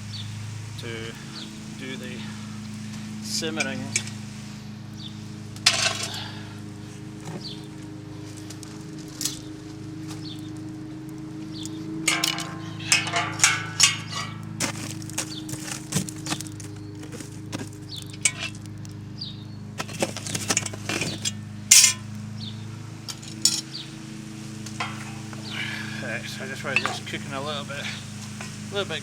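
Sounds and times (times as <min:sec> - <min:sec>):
metal clinking and rattling: 0:05.6 - 0:06.2, 0:09.1 - 0:09.5, 0:11.6 - 0:16.6, 0:18.0 - 0:18.7, 0:19.8 - 0:22.1, 0:23.0 - 0:23.7, 0:24.8 - 0:25.4.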